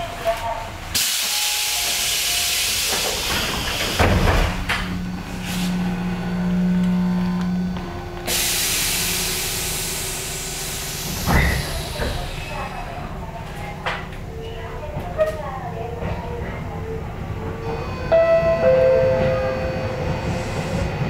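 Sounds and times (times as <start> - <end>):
train compressed-air hiss: 1.0 - 4.0, 8.3 - 12.5.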